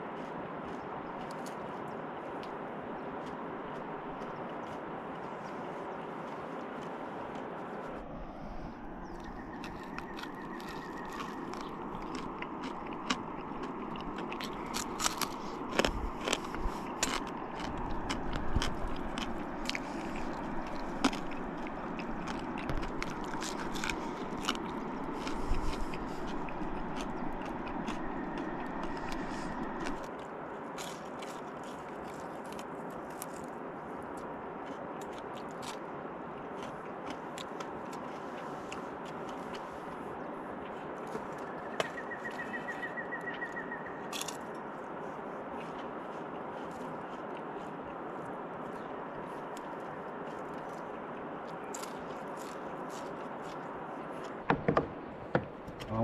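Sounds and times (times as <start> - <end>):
crunching of fried fish eaten: 0.0 - 8.0, 8.6 - 54.4.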